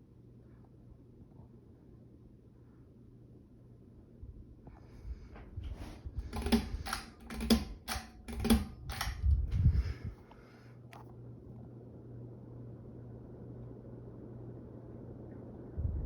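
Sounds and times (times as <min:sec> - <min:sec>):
faint steady hum: 0:00.0 - 0:16.0
sharp clicks and low knocks: 0:06.3 - 0:09.6.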